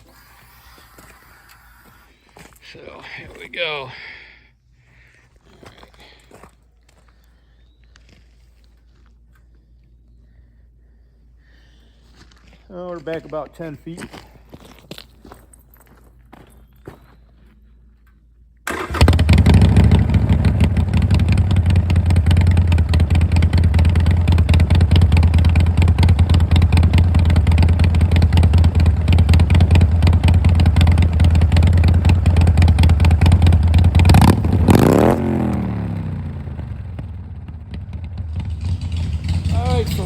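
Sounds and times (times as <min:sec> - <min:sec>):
motorcycle engine running loud: 0:18.7 - 0:40.0.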